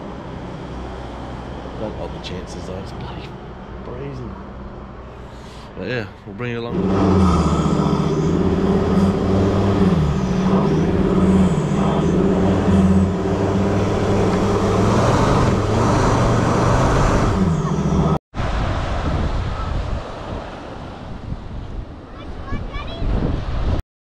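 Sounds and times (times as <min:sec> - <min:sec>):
wind: 0:00.0 - 0:23.8
vehicle engine running: 0:05.2 - 0:18.2
surf: 0:05.6 - 0:23.8.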